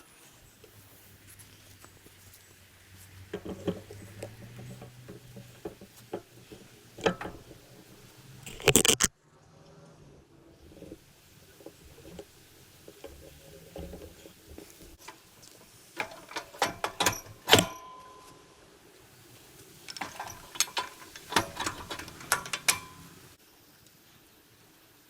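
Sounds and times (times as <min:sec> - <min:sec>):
metal tools clanking: 0:02.9 - 0:09.1, 0:16.0 - 0:18.4, 0:19.6 - 0:23.4
ringing steel strike: 0:17.6 - 0:18.4.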